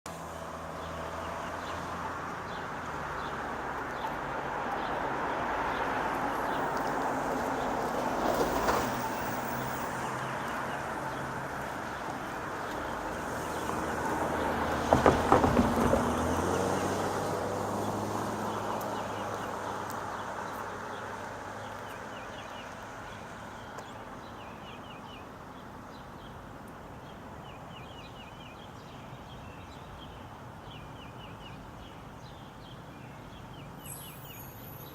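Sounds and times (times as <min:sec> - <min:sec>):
vehicles passing on a road: 0:00.1 - 0:34.9
small birds chirping: 0:17.9 - 0:34.9.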